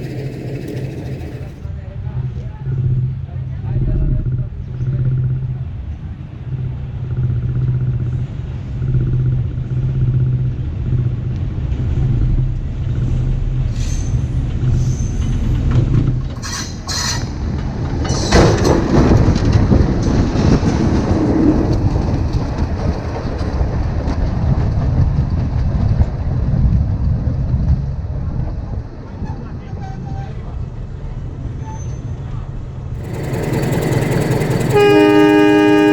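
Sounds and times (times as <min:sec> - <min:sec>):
diesel train engine hum: 0:00.0 - 0:01.9, 0:32.7 - 0:35.9
train rumbling on rails: 0:00.0 - 0:35.9.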